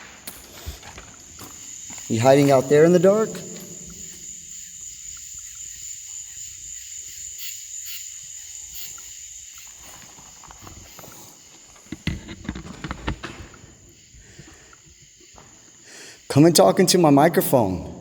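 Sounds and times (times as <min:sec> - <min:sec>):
irregular knocks and rustles: 0:00.0 - 0:02.6, 0:09.6 - 0:15.8
crickets chirping: 0:00.0 - 0:18.0.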